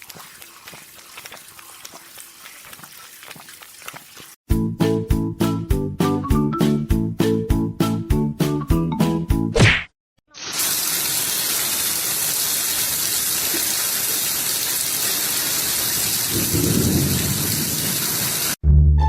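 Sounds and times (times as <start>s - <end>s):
rushing water: 0.0s - 4.4s, 10.4s - 18.6s
music: 4.5s - 9.6s, 18.6s - 19.0s.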